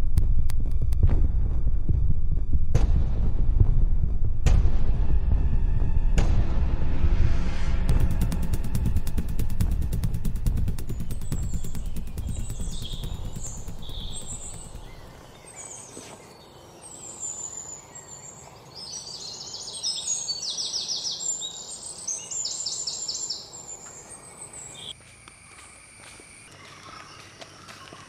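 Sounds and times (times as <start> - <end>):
birds chirping: 9.9 - 28.0
rapid bird trills: 10.0 - 25.0.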